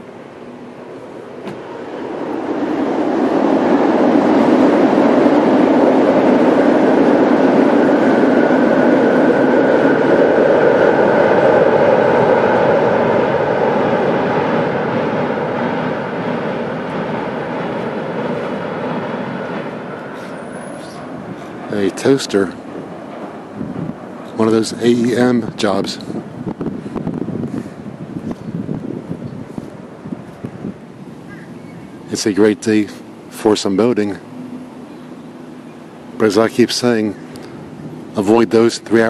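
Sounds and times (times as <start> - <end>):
passenger train passing: 0.0 - 39.0.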